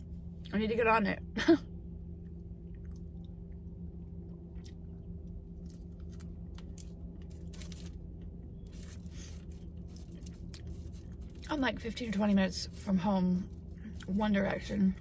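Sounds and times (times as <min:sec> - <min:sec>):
steady low hum: 0:00.0 - 0:15.0
woman biting and chewing: 0:08.7 - 0:11.5.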